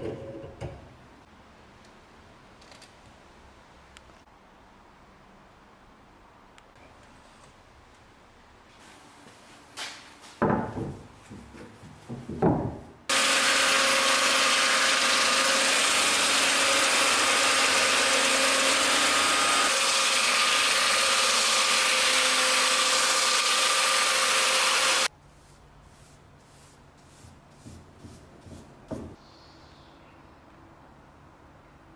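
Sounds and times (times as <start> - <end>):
handling knocks and scrapes: 8.7 - 13.0, 25.2 - 29.2.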